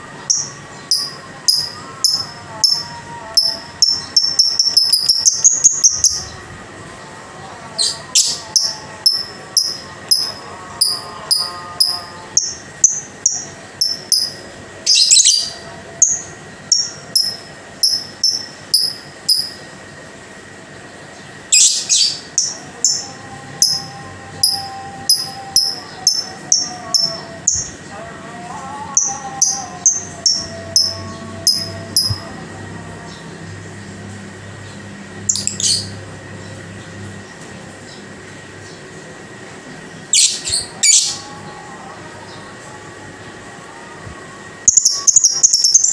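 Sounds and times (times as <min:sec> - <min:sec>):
faint steady high tone: 0:22.4 - 0:33.3
lovebird chirping: 0:35.3 - 0:36.0.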